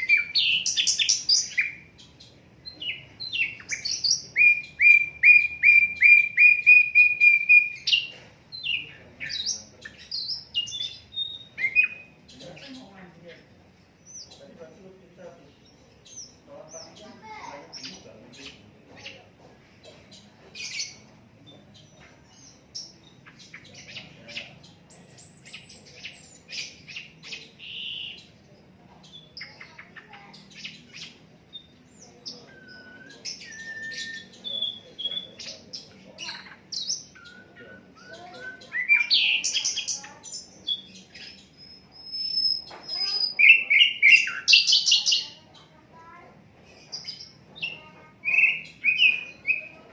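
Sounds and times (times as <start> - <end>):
bird chirping and whistling: 3.2 - 12.1, 32.5 - 35.5, 36.2 - 45.2, 48.2 - 49.8.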